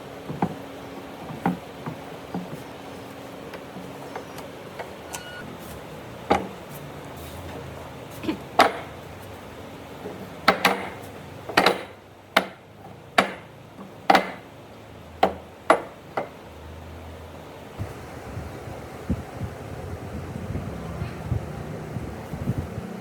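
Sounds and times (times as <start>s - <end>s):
hammer striking wood: 8.6s - 9.0s, 10.4s - 13.5s, 14.1s - 14.5s, 15.2s - 16.4s.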